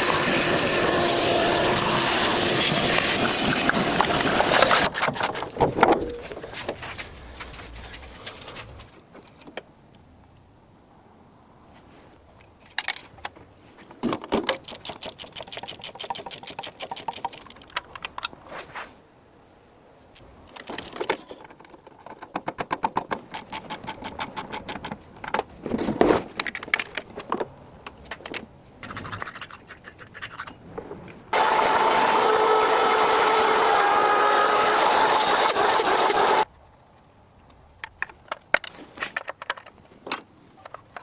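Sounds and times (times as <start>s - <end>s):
metallic clicking and scraping: 14.4s - 18.4s, 20.2s - 25.4s, 27.9s - 30.6s.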